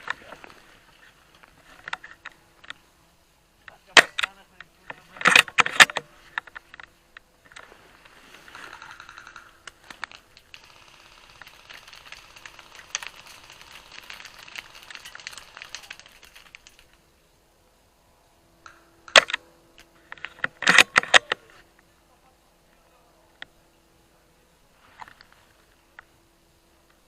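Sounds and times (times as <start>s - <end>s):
rustling handling noise: 3.7s - 17.1s
sharp crack: 3.8s - 4.4s, 8.5s - 17.0s.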